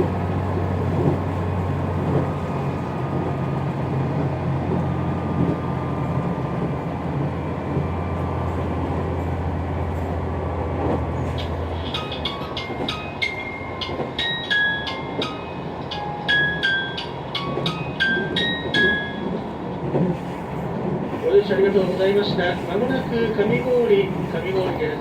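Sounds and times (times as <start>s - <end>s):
diesel engine hum: 0.0s - 12.2s
train wheels rumbling on rails: 0.0s - 25.0s.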